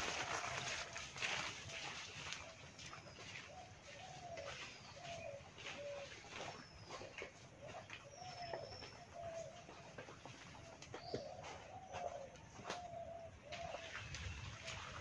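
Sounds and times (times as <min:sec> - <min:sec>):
low bird cooing: 0:03.2 - 0:15.0.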